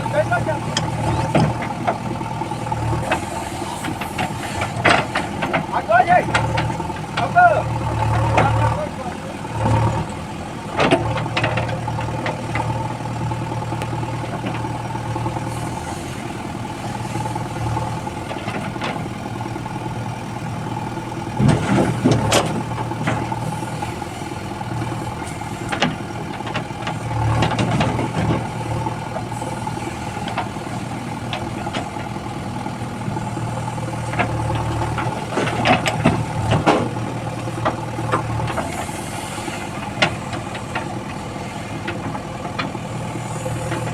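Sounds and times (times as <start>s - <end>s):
diesel engine running: 0.0s - 43.9s
metal knocks and clanks: 34.0s - 38.8s.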